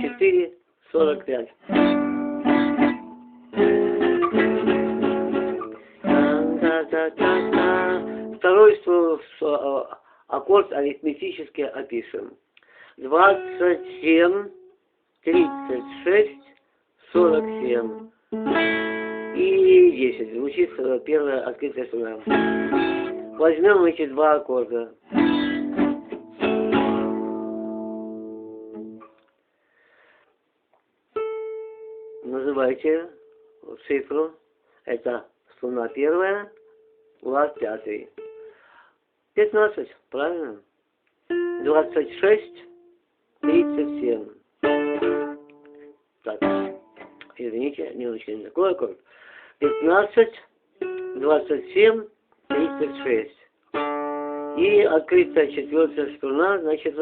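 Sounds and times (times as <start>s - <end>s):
acoustic guitar chord picked: 1.7s - 8.4s, 13.2s - 16.5s, 17.2s - 19.5s, 22.2s - 23.5s, 25.1s - 29.0s, 44.6s - 47.2s
single guitar note plucked: 13.3s - 16.5s, 44.6s - 47.4s.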